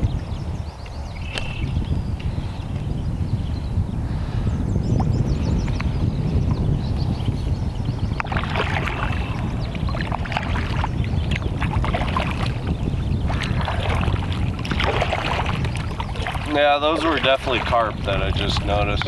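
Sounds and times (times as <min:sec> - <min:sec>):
wind on microphone: 0:00.0 - 0:19.0
water lapping against canoe hull: 0:07.7 - 0:19.0.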